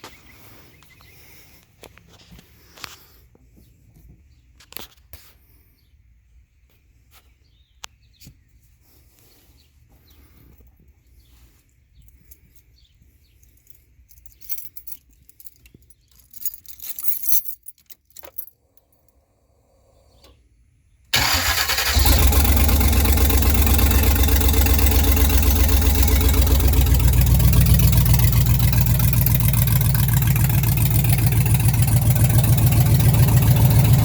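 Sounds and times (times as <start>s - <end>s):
clicks and small rattles: 13.4s - 18.6s
keys jangling: 13.4s - 19.1s.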